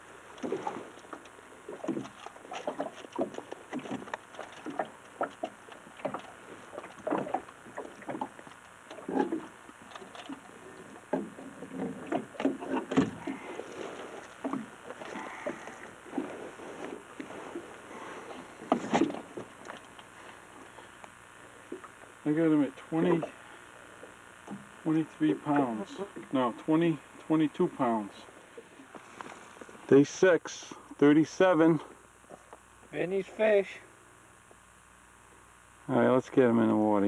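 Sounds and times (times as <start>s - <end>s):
knocking and clatter on boat: 0.4s - 13.7s.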